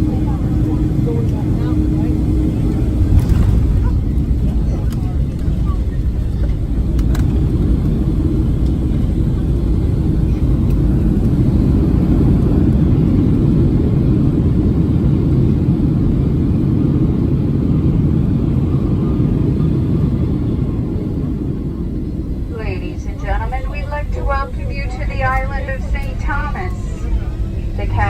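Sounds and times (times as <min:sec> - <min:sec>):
aircraft cabin rumble: 0:00.0 - 0:28.0.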